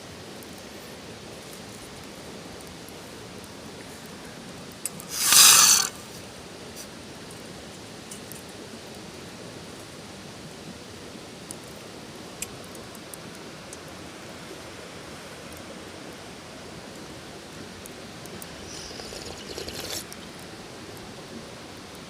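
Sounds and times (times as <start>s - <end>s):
wood fire crackling: 0.1s - 22.0s
rustling scraping noise: 5.0s - 6.2s.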